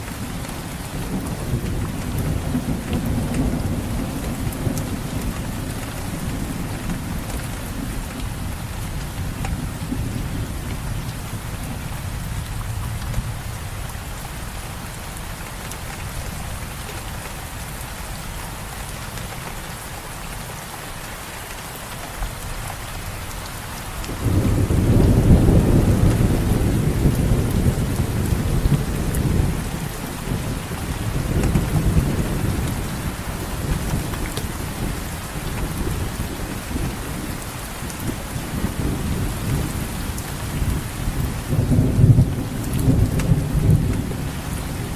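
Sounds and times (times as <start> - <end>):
steady rain falling: 0.0 - 44.9
low rumble of thunder: 0.1 - 14.9, 24.0 - 44.9.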